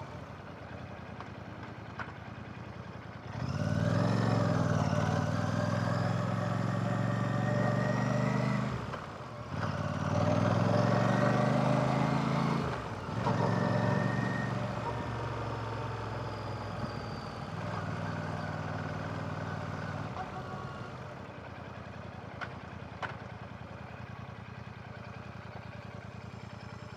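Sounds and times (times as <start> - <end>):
motorcycle engine revving: 3.3 - 16.7.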